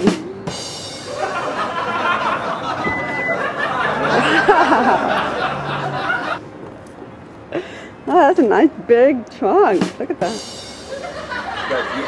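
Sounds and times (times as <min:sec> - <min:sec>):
stifled laughter: 0:01.1 - 0:06.4
overlapping voices: 0:01.2 - 0:06.4
short high beep: 0:02.8 - 0:03.6.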